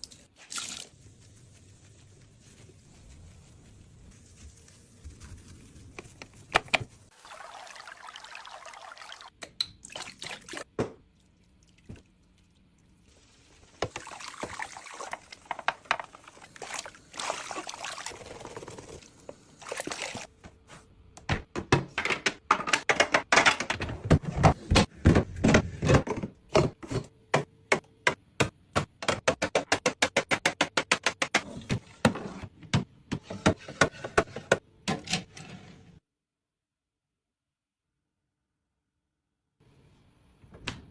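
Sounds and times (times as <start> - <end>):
water pouring and splashing: 0.0 - 1.2, 7.1 - 20.3.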